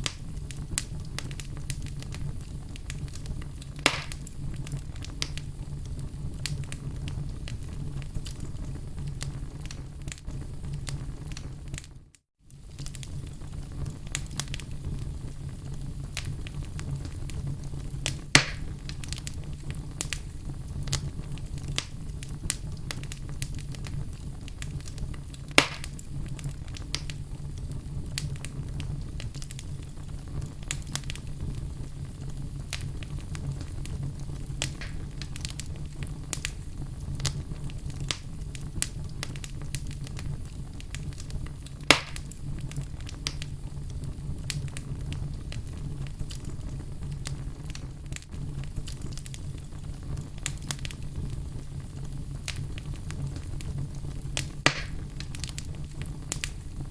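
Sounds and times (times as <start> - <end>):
low rumble of flames: 0.0 - 56.9
small fire crackles: 0.0 - 56.9
wood fire burning: 0.0 - 56.9
loud wood pops: 3.8 - 4.3, 18.4 - 18.6, 25.6 - 26.0, 34.8 - 35.0, 41.9 - 42.3, 54.7 - 55.0.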